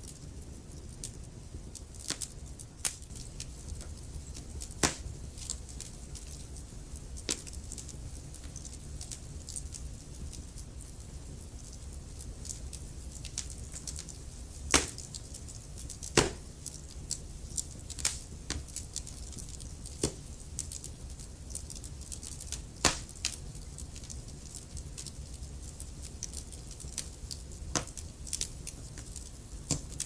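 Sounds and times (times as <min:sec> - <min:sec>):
low rumble of flame: 0:00.0 - 0:30.0
loud pops from fire: 0:01.0 - 0:10.6, 0:11.2 - 0:20.9, 0:21.5 - 0:30.0
logs crackling: 0:01.0 - 0:10.9, 0:11.5 - 0:30.0.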